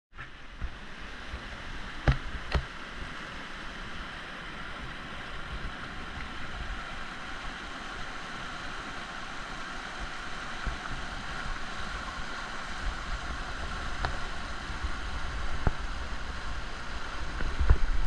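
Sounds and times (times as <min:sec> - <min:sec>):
river water rushing: 0:00.2 - 0:18.0.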